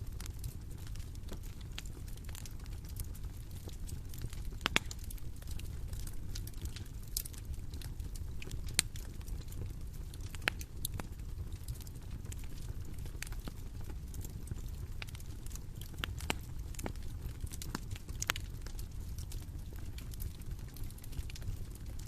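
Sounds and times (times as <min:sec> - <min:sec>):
bonfire popping and snapping: 0:00.0 - 0:22.0
low rumble of fire: 0:00.0 - 0:22.0.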